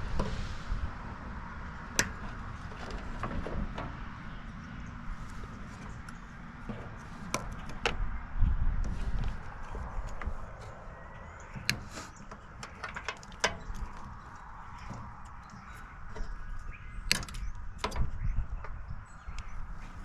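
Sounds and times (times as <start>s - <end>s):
low handling rumble: 0.0s - 20.0s
knocks and clicks of metal casing: 5.3s - 8.1s, 11.4s - 19.5s.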